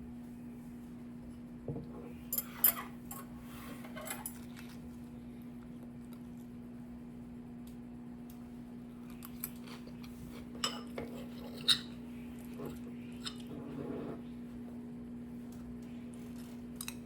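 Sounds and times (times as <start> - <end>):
steady low hum: 0.0 - 17.0
utensils clinking on dishes: 10.5 - 13.5.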